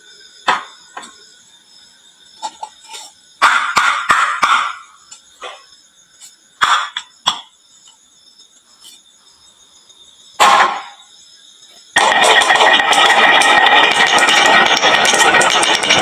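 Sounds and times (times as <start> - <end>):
marbles clicking on wood: 12.0 - 16.0
marbles rolling and rattling: 12.0 - 16.0.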